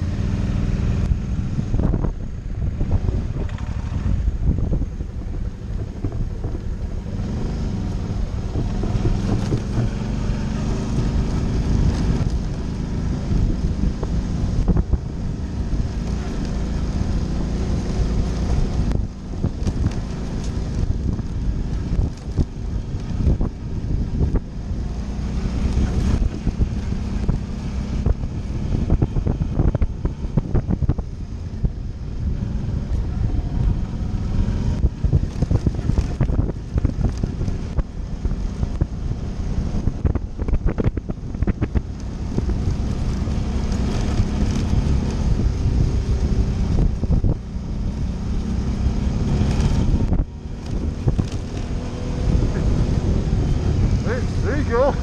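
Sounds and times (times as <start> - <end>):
motorcycle engine running: 0.0 - 55.0
wind noise on microphone: 0.0 - 55.0
bike rattling over rough ground: 1.8 - 31.6, 32.8 - 39.0, 39.9 - 48.2, 49.2 - 55.0.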